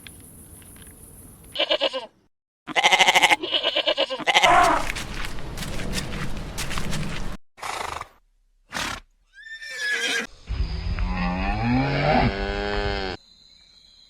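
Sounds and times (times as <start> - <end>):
horse whinnying: 8.7 - 10.3.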